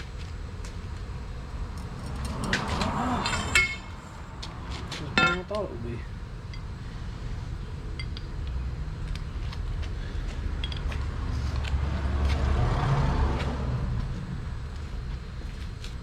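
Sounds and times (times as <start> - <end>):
low steady rumble: 0.0 - 11.8
metal clinking on metal: 1.8 - 4.1, 5.2 - 5.6, 10.6 - 11.0.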